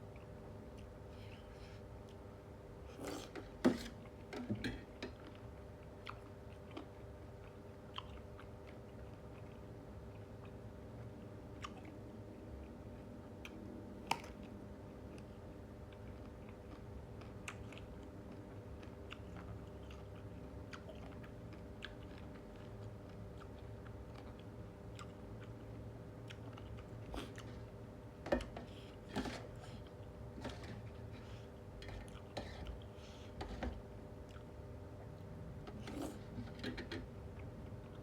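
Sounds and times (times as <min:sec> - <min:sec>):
low steady hum: 0:00.0 - 0:38.0
person chewing food: 0:05.0 - 0:38.0.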